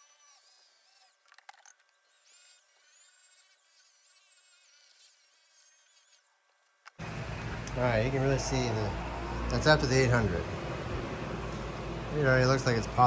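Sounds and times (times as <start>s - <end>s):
drill motor whine: 7.0s - 13.0s.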